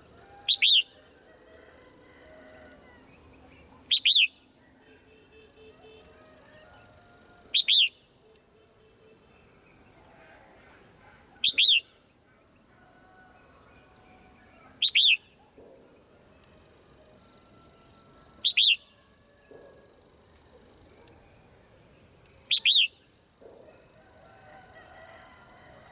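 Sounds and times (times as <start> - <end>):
faint bird twittering: 3.3 - 4.5, 11.1 - 12.0, 14.4 - 16.0, 22.4 - 23.6
swallow sharp double chirps: 3.9 - 4.3, 11.4 - 11.9, 14.8 - 15.4, 22.4 - 23.1.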